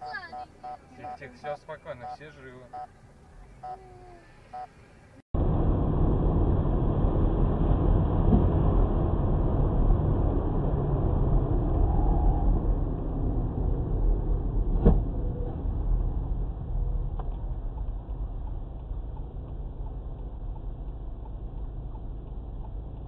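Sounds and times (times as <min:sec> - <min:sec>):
car driving rumble: 0:00.0 - 0:23.0.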